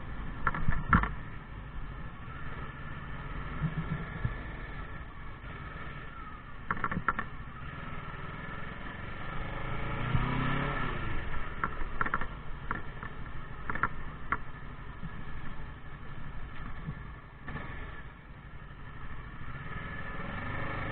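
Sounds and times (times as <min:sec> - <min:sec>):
motorcycle engine running: 0:00.0 - 0:20.9
sharp clicks or rattles: 0:00.4 - 0:01.2, 0:06.6 - 0:07.3, 0:11.6 - 0:14.5.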